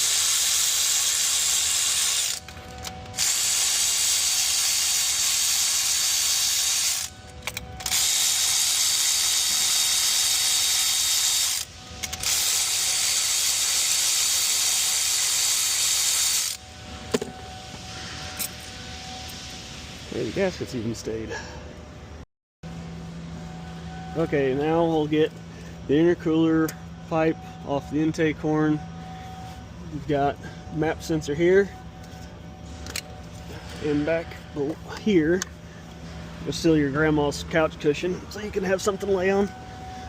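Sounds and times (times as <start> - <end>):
power tool spinning fasteners: 0.0 - 19.4.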